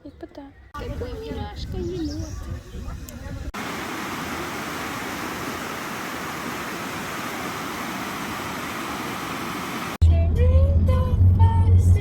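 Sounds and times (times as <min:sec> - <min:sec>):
rushing hiss: 0:03.6 - 0:10.0.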